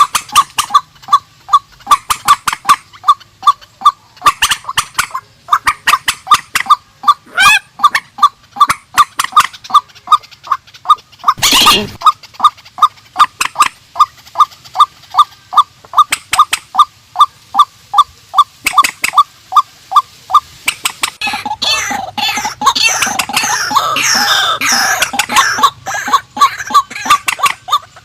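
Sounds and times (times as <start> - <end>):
waterbirds calling: 0.0 - 28.0
bird screeching: 11.2 - 12.0, 21.2 - 27.2.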